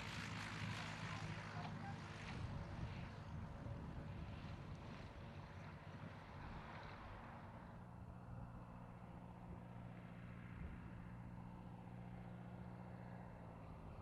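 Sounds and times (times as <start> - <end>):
light aircraft engine humming: 0.0 - 14.0.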